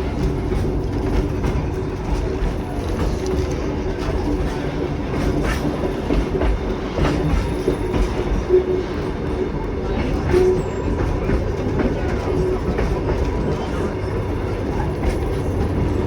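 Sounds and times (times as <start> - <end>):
wheels clicking over rail joints: 0.0 - 8.6
train rumble: 0.0 - 16.0.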